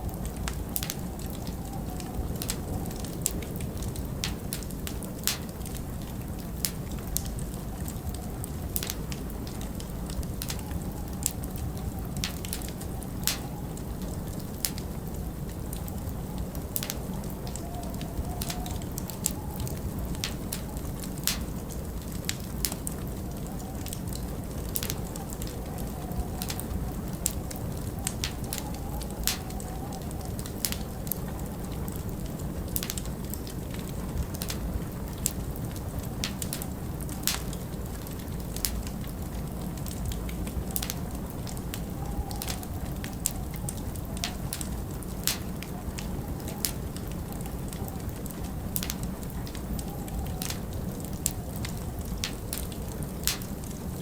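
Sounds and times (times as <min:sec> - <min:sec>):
fire low rumble: 0:00.0 - 0:54.0
howling wind: 0:00.0 - 0:54.0
wood fire crackling and popping: 0:00.0 - 0:54.0.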